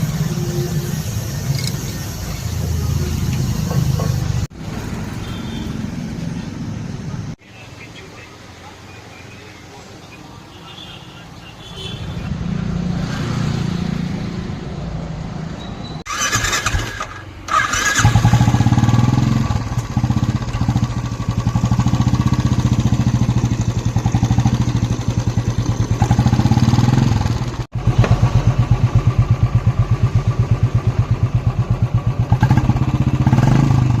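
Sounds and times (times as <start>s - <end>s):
motorcycle engine running: 17.5s - 34.0s.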